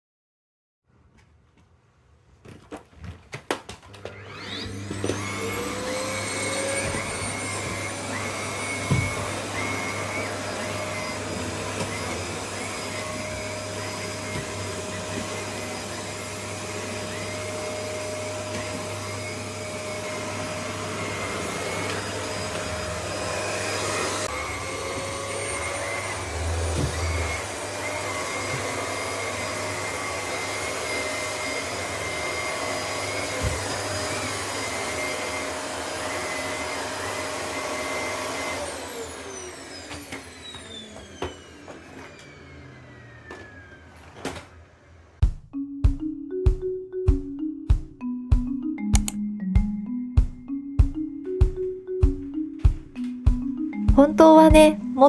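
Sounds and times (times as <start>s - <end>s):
vacuum cleaner motor whining: 3.8s - 45.2s.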